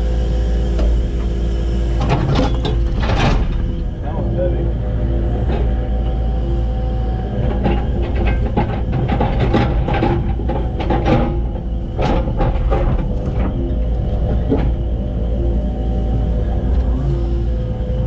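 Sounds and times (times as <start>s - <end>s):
excavator engine running: 0.0s - 18.0s
steel clanking and scraping on rock: 7.2s - 14.9s.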